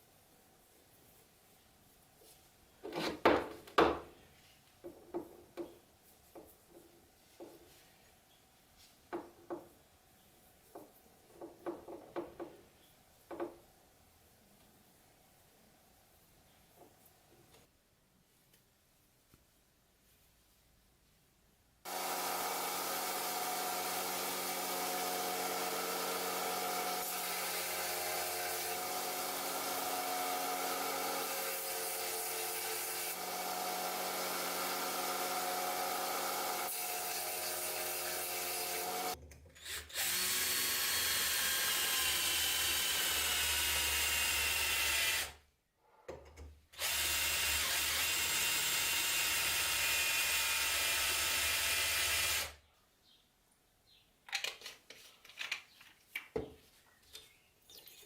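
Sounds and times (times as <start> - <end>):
electric power tool motor humming: 21.9 - 45.3.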